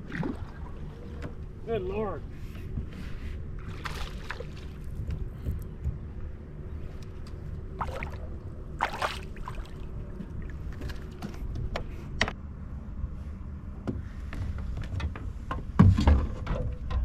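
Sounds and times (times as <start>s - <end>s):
water splashing and handling: 0.0s - 1.5s, 2.6s - 5.6s, 7.7s - 11.5s
wind rumble on microphone: 0.0s - 17.0s.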